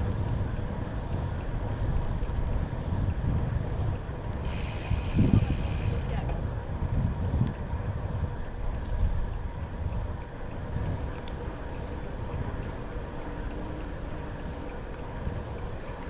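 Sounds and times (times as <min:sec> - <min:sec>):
bicycle rolling on a trail: 0:00.0 - 0:16.0
wind on microphone: 0:02.8 - 0:09.3.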